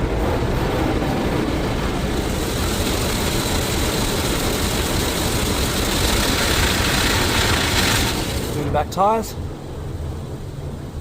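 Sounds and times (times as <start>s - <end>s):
car wash brushes scrubbing: 2.1s - 8.6s
water spray: 2.1s - 8.7s.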